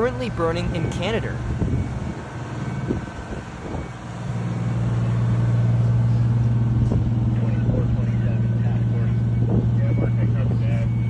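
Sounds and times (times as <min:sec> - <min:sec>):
engine low drone: 0:00.0 - 0:11.0.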